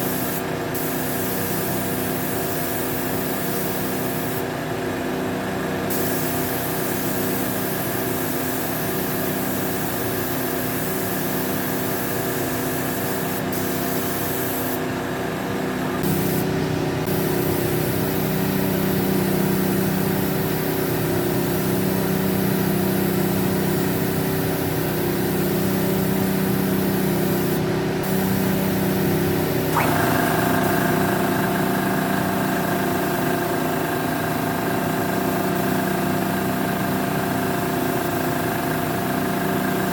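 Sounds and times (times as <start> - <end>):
machine motor hissing: 16.0 - 39.9.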